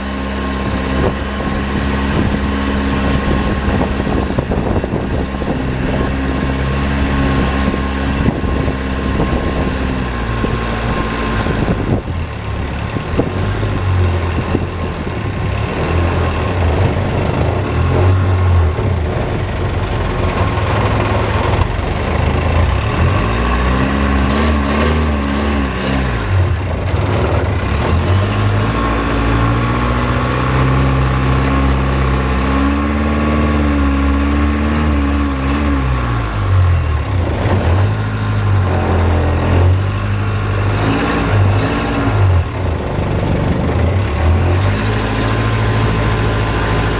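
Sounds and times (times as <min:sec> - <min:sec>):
motorboat engine running: 0:00.0 - 0:46.9
wind: 0:00.0 - 0:46.9.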